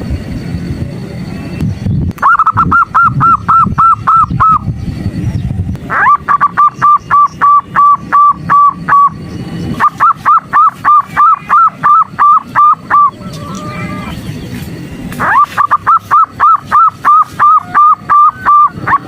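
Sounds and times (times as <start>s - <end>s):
dove calling short repeated notes: 9.8s - 14.0s, 15.2s - 19.0s.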